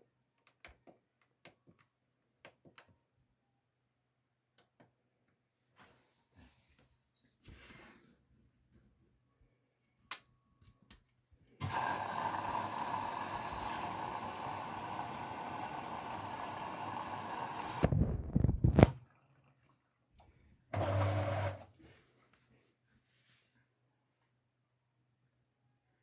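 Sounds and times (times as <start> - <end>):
water rushing into washing machine: 11.6 - 21.7.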